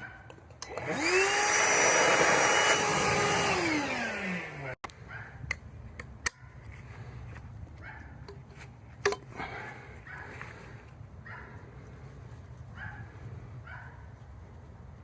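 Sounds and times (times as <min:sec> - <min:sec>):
clicks and knocks of tools: 0:00.2 - 0:01.0
power tool motor running: 0:00.6 - 0:04.8.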